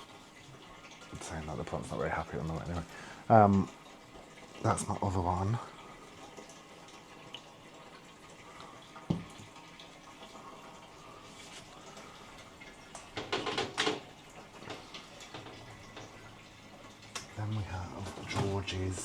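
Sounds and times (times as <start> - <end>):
faint water sounds: 0.0 - 19.0
houseplants being handled: 11.3 - 11.8.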